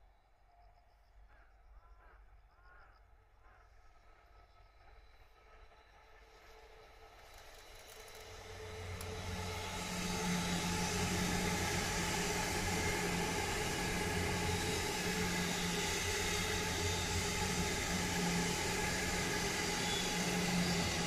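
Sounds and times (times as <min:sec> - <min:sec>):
electric train passing: 0:01.0 - 0:21.0.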